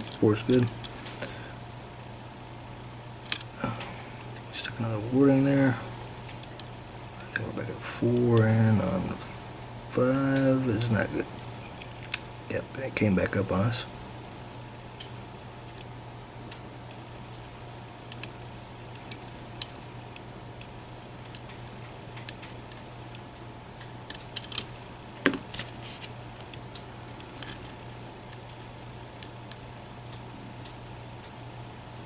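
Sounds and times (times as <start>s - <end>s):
steady low hum: 0.0s - 32.0s
metallic clicks of lock pick: 3.2s - 3.5s, 19.0s - 19.8s, 24.0s - 24.7s.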